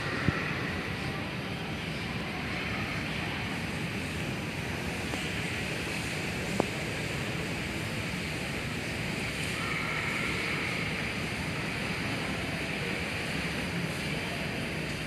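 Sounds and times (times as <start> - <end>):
airport terminal background noise: 0.0 - 15.0.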